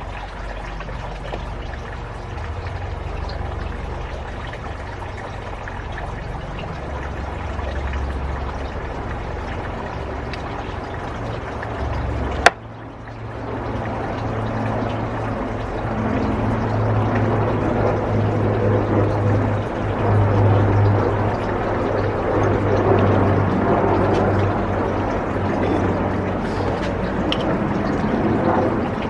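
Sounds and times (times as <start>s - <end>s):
water pouring and trickling: 0.0s - 29.0s.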